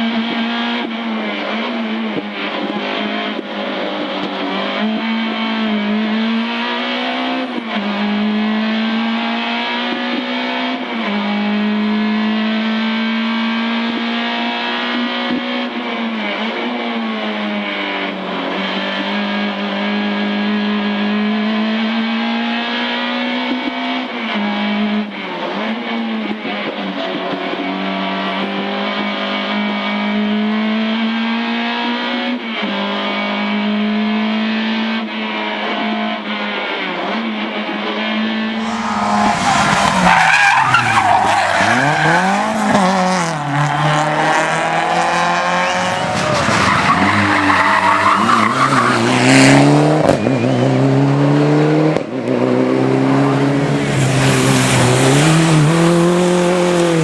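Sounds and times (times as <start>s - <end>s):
car engine at high revs: 0.0s - 57.0s
tyres squealing and skidding: 38.6s - 51.0s.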